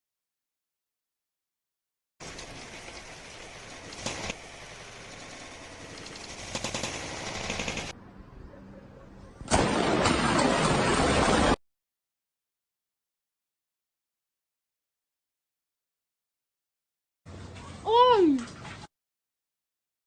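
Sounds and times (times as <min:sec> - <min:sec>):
sharp crackling bursts: 0:02.2 - 0:07.9.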